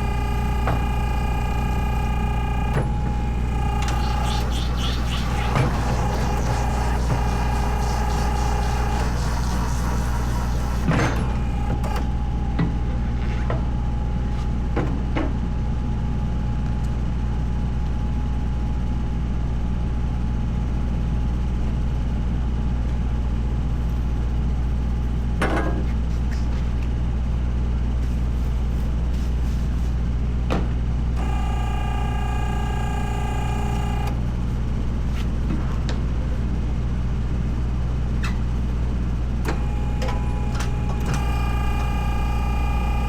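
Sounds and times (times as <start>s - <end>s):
electronic beep tone: 0.0s - 10.1s.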